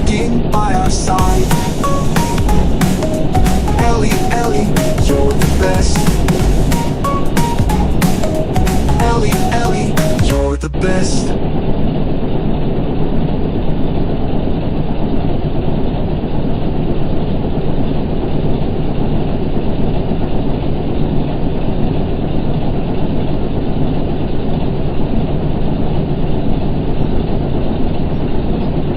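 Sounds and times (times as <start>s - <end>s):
excavator engine running: 0.0s - 11.3s.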